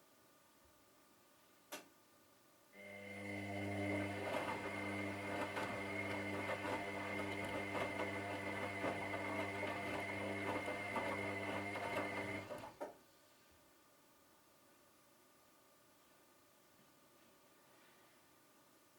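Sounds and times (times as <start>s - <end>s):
washing machine motor humming: 2.8s - 12.8s.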